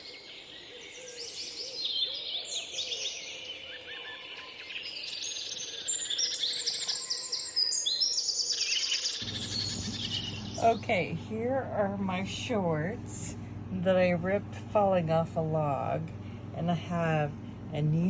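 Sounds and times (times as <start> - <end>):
birds singing and chirping: 0.0 - 11.1
pulsed bird trills: 1.1 - 11.0.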